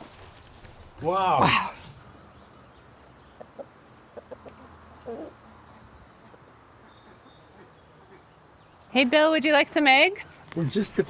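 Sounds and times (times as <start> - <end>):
hens clucking: 3.2 - 5.4.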